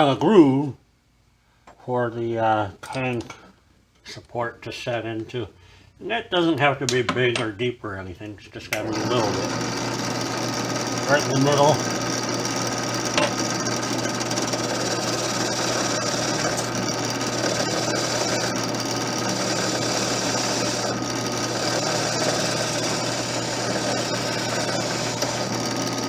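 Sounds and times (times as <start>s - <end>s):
motor hum: 8.8s - 26.0s.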